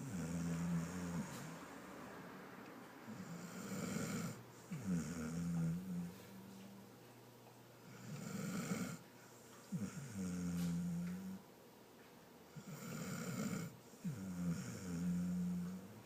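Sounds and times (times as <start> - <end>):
dog snoring: 0.0 - 1.7, 3.0 - 6.8, 7.8 - 11.5, 12.5 - 16.0.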